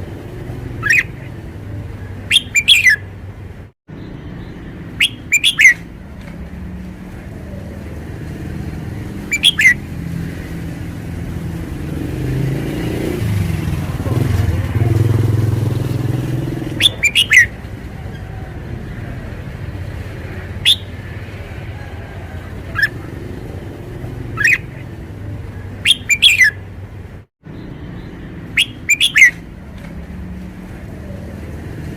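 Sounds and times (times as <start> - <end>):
vehicle engine rumbling: 0.0 - 31.9
bird singing sharp phrases: 0.8 - 1.4, 2.0 - 3.1, 3.9 - 5.9, 9.2 - 9.8, 16.7 - 17.6, 20.4 - 21.0, 24.3 - 25.0, 25.7 - 26.6, 27.5 - 29.4.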